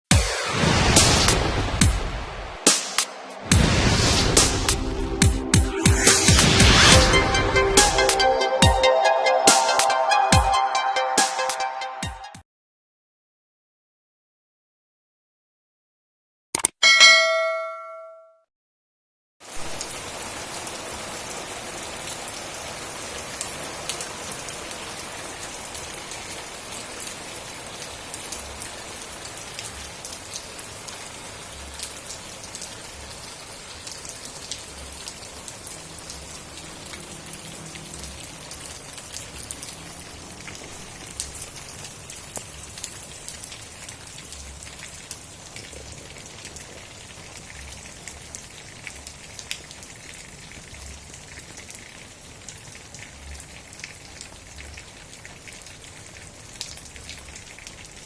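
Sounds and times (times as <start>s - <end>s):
steady rain falling: 0.9s - 5.1s, 19.4s - 58.0s
raindrops ticking: 23.3s - 58.0s.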